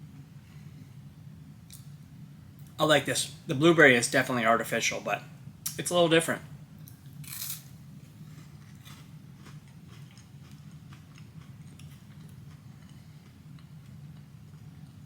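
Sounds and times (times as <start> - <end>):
low steady hum: 0.0 - 15.0
person chewing crispy wafer: 7.2 - 15.0.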